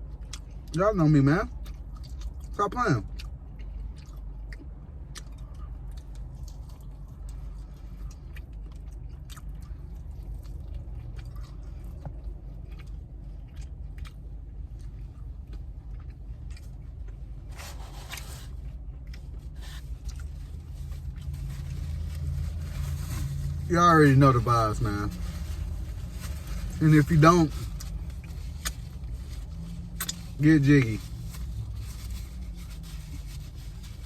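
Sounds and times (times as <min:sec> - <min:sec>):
steady low hum: 0:00.0 - 0:34.0
chewing and biting chicken wings: 0:01.5 - 0:22.4.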